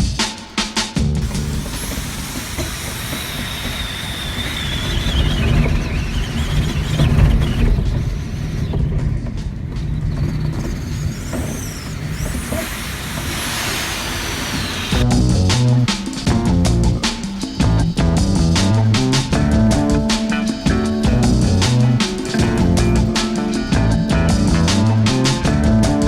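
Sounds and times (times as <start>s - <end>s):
wind whistling: 0.0s - 26.0s
strong wind rushing: 12.0s - 26.0s.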